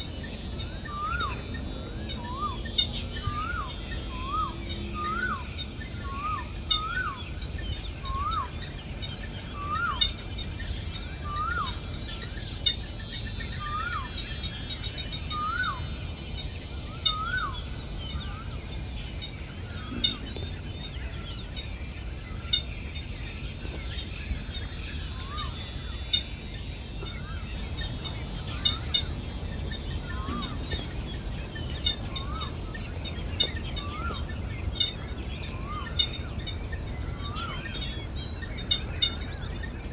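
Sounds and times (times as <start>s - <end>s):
crickets and cicadas chorus: 0.0s - 39.9s
bird calling: 27.0s - 39.9s.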